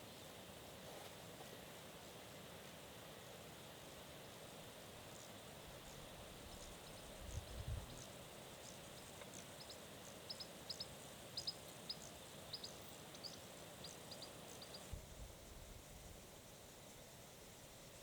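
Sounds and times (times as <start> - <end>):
background hiss: 0.0 - 18.0
small bird chirping: 5.8 - 14.9.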